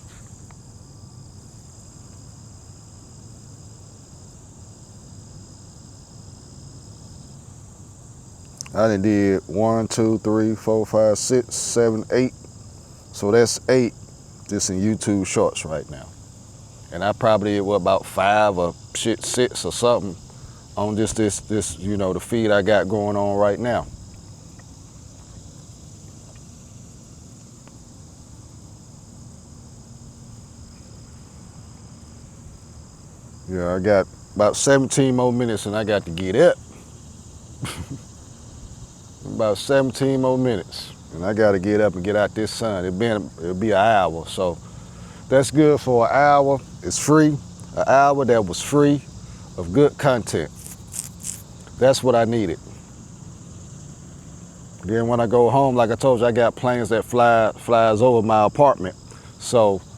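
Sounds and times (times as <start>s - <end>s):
faint low hum: 0.0s - 59.9s
insects chirring: 0.0s - 59.9s.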